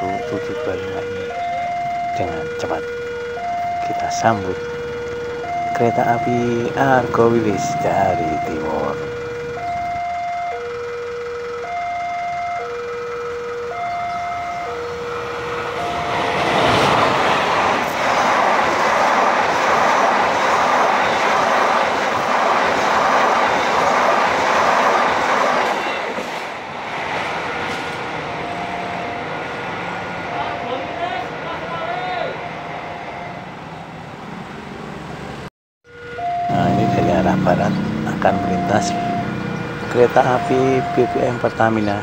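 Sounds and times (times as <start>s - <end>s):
two-tone level crossing alarm: 0.0s - 17.0s, 27.7s - 31.0s, 32.4s - 33.6s, 35.8s - 42.0s
passenger train passing at speed: 0.0s - 42.0s.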